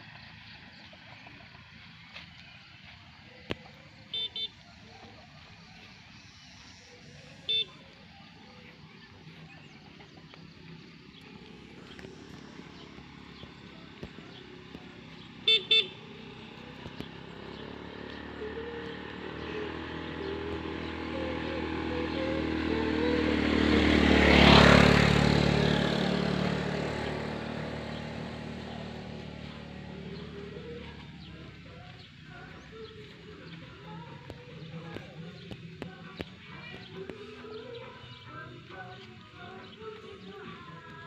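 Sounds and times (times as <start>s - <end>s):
vehicle engine passing: 0.0s - 41.0s
vehicle horn beeps: 4.1s - 4.7s, 7.4s - 7.8s, 15.4s - 16.1s.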